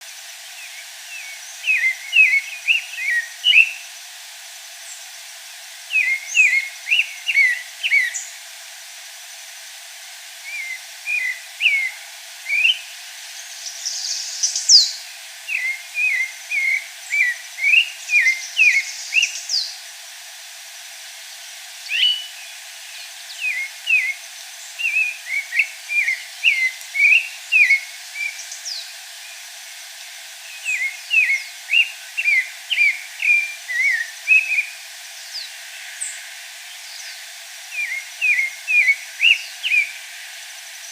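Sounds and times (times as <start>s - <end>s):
thrush singing whistled notes: 0.5s - 3.9s, 5.9s - 8.4s, 10.4s - 19.8s, 21.8s - 29.4s, 30.4s - 40.1s.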